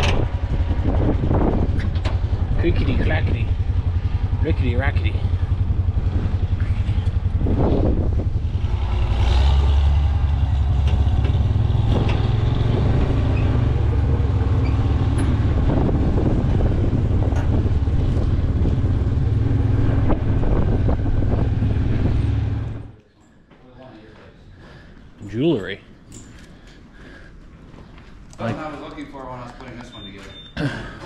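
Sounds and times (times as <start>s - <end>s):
tractor engine clattering: 0.0s - 22.9s.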